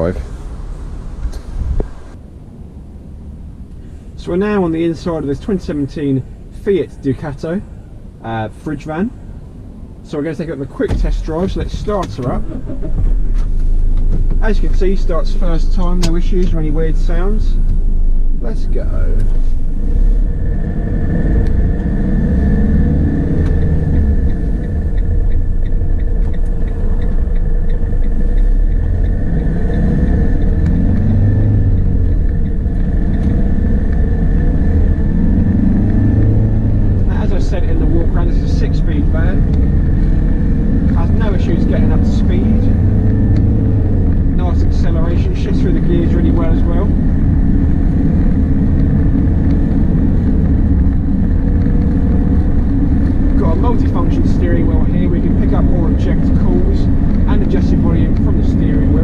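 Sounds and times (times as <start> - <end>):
high whine: 0.0 - 59.0
van diesel engine accelerating: 0.0 - 59.0
light ticking: 22.5 - 35.0.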